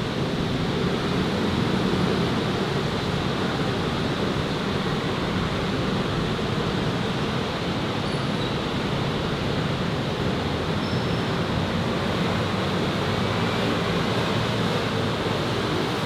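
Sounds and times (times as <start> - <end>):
steady outdoor roar: 8.6 - 16.0.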